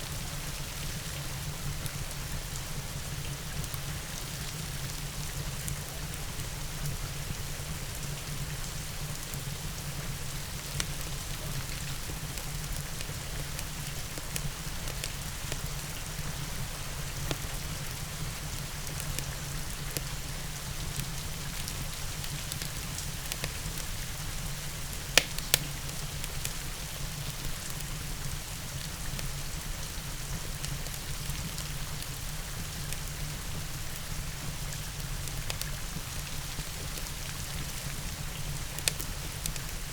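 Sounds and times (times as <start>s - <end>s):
steady rain: 0.0s - 39.9s
wood fire crackling and popping: 24.6s - 26.8s, 36.8s - 39.9s.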